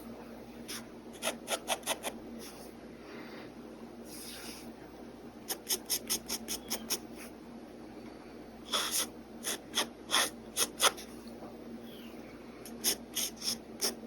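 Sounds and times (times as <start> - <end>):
pen scratching on paper: 12.8 - 14.0.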